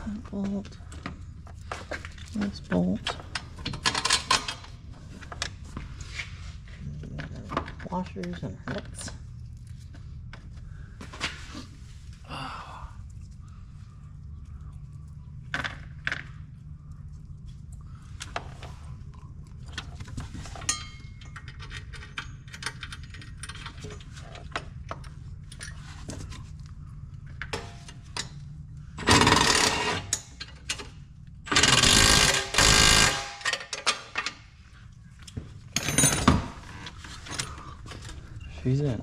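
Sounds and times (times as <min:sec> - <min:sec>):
power tool tightening nuts: 0:29.0 - 0:30.2, 0:31.5 - 0:33.7.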